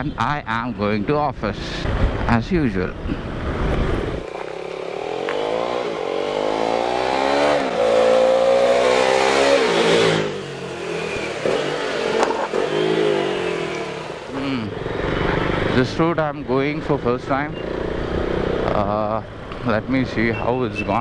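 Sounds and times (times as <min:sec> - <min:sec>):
motorcycle engine accelerating: 0:03.2 - 0:19.6.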